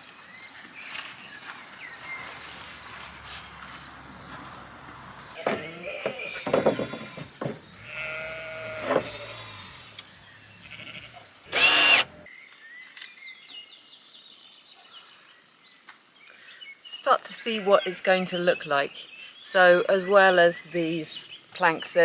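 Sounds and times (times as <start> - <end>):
crickets chirping: 0.0 - 6.0
cordless drill whirring: 11.5 - 12.3.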